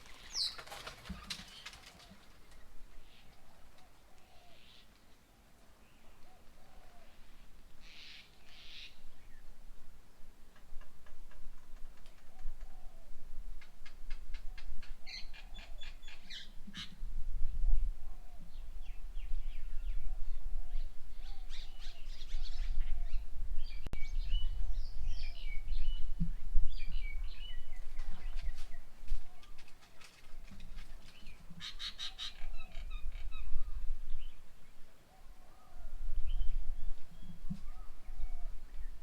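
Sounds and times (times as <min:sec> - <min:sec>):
birds calling: 0:00.0 - 0:05.1, 0:05.9 - 0:09.4, 0:26.7 - 0:39.0.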